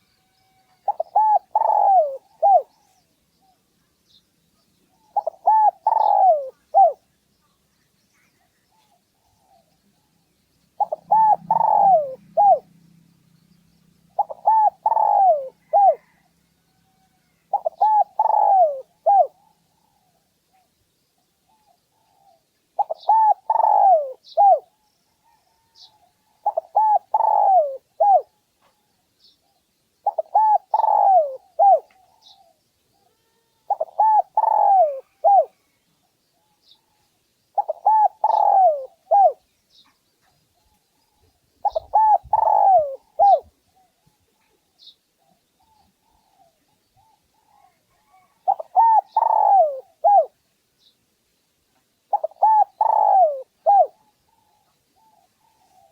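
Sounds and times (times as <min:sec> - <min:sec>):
dove cooing: 0:00.0 - 0:03.6, 0:04.9 - 0:07.0, 0:10.8 - 0:12.8, 0:14.1 - 0:20.2, 0:21.4 - 0:28.8, 0:29.4 - 0:35.6, 0:37.6 - 0:39.5, 0:40.6 - 0:50.4, 0:52.1 - 0:55.9
faint low hum: 0:06.3 - 0:17.9.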